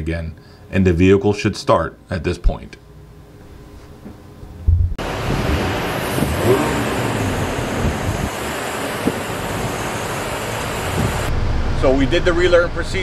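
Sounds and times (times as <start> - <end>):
car engine starting and idling: 4.6 - 13.0.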